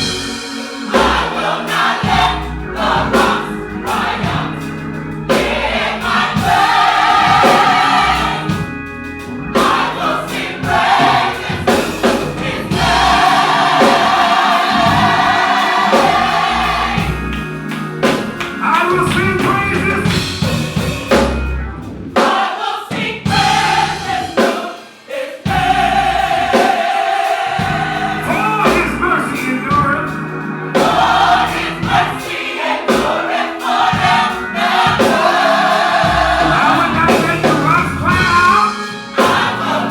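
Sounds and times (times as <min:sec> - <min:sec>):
gospel choir singing: 0:00.0 - 0:39.9
instrumental backing with drums: 0:00.0 - 0:39.9.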